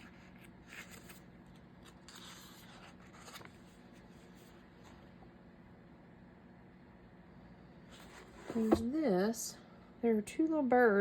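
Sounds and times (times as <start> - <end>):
paper rustling: 0.0 - 4.5.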